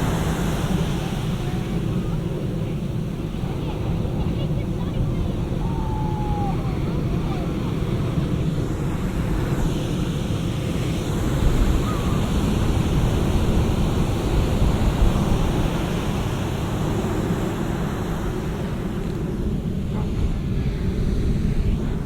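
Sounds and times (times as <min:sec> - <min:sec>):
surf breaking on beach: 0:00.0 - 0:09.7
wind on microphone: 0:00.0 - 0:22.0.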